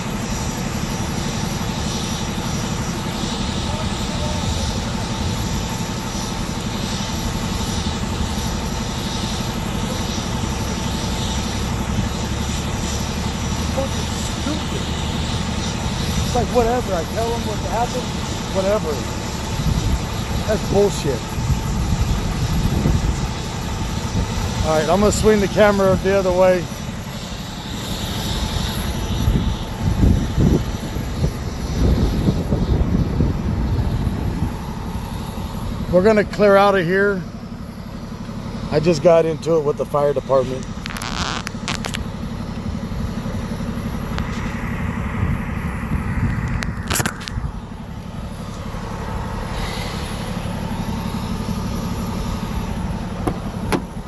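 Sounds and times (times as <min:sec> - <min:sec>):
wind buffeting microphone: 0:15.8 - 0:26.5, 0:28.3 - 0:35.9, 0:44.2 - 0:47.7.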